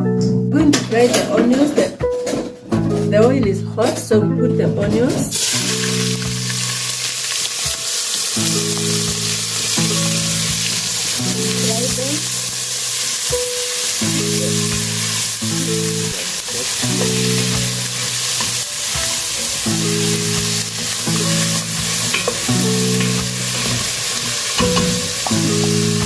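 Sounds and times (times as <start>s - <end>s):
background music with held chords: 0.0s - 26.0s
onions sizzling in hot oil: 5.3s - 26.0s.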